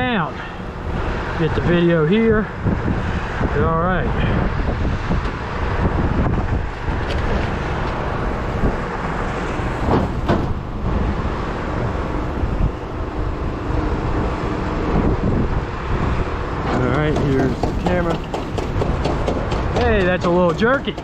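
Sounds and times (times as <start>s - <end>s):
vehicle engine rumbling: 0.0s - 21.0s
short knocks: 16.7s - 21.0s.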